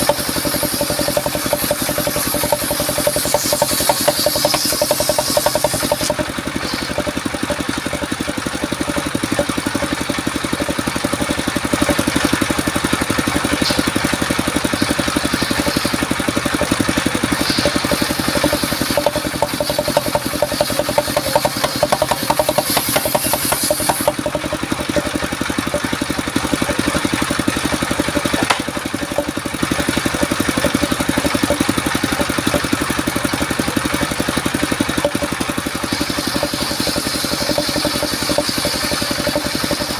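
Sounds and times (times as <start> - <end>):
saw hissing: 0.0 - 39.9
sawmill engine running: 0.0 - 39.9.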